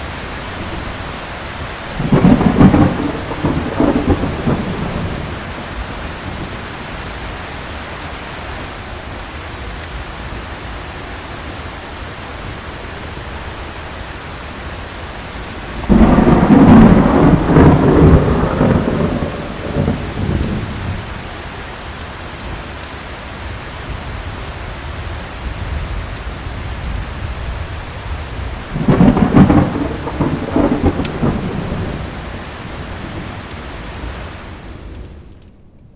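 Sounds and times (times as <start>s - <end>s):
thunder rolling: 0.0s - 8.7s, 15.2s - 22.0s, 23.9s - 35.8s
heavy rain falling: 0.0s - 35.5s.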